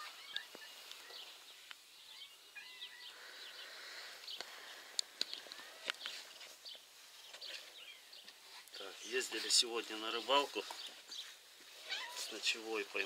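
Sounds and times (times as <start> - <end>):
outdoor background hiss: 0.0 - 13.0
small birds chirping: 0.0 - 13.0.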